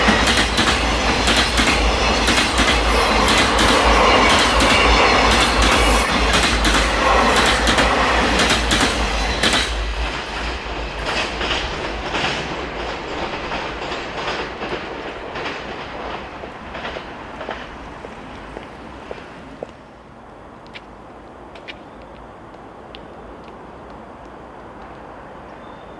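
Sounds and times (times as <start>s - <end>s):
freight train wheels clacking: 0.0s - 18.3s.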